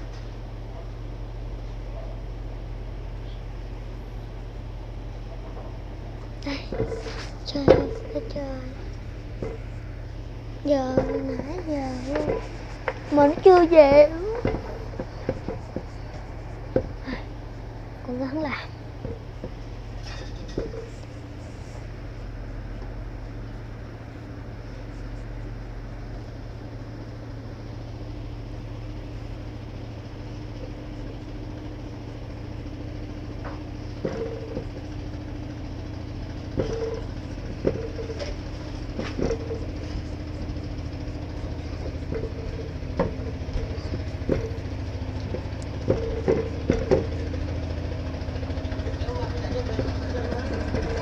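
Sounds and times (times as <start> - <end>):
low mechanical hum: 0.0 - 51.0
sharp knocks and clacks: 10.9 - 17.0, 41.4 - 47.5.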